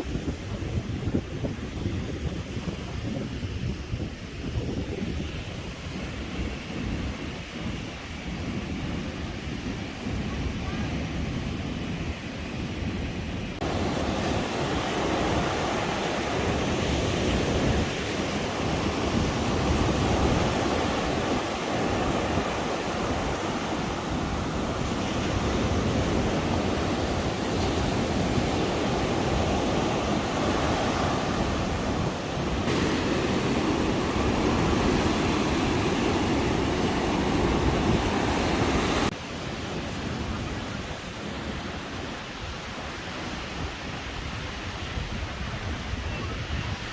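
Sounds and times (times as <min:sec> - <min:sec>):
wind buffeting microphone: 0:00.0 - 0:46.9
surf breaking on beach: 0:13.6 - 0:46.9.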